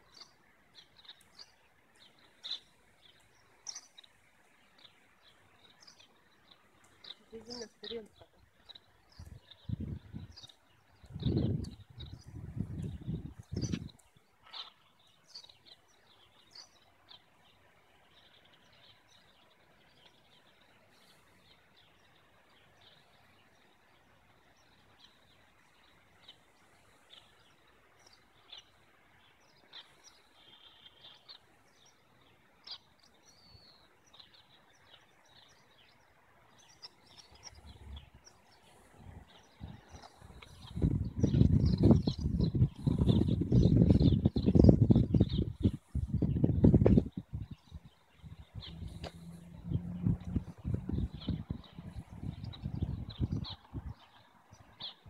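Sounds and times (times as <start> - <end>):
faint bird chirps: 0.0 - 55.0
background hiss: 11.8 - 55.0
low rumble: 40.6 - 53.6.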